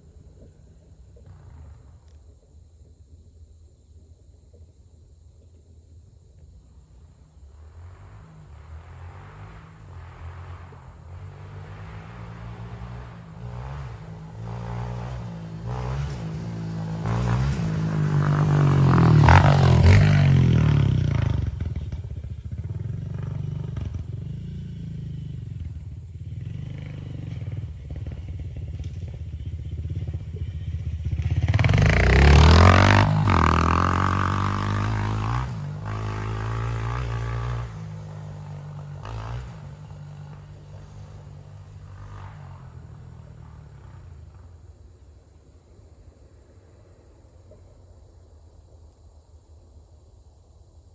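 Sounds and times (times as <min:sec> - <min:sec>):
dirt bike engine revving: 0:08.9 - 0:44.4.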